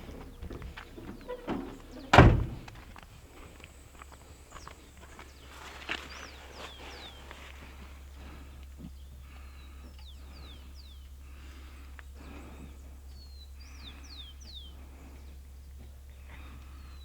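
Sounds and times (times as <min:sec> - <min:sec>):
heavy thunk: 0:00.4 - 0:02.9.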